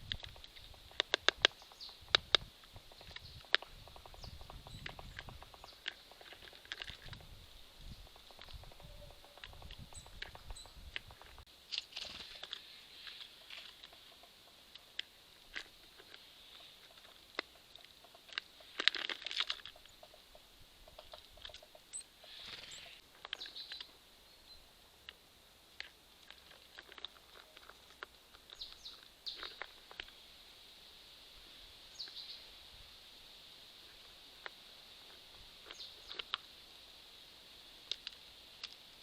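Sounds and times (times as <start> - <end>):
birds pecking taps: 0.0 - 7.2.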